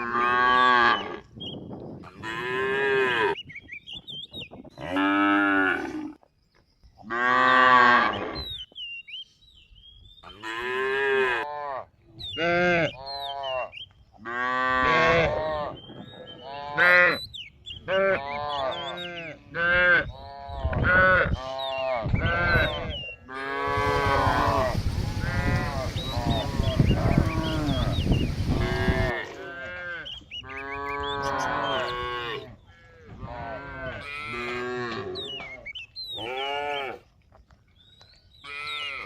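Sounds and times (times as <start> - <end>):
small birds chirping: 3.2 - 4.9, 8.2 - 10.4, 15.7 - 19.5, 24.5 - 29.0, 30.0 - 32.9, 35.1 - 36.9
cattle mooing: 22.0 - 35.2
steady rushing hiss: 23.7 - 29.1.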